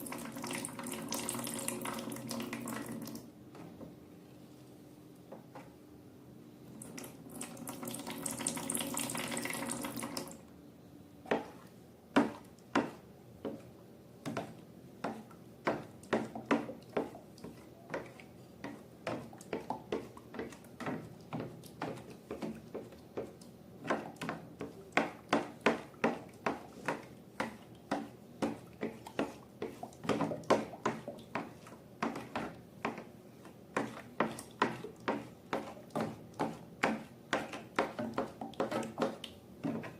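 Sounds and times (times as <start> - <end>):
slime squelching as stirred: 11.3 - 39.9.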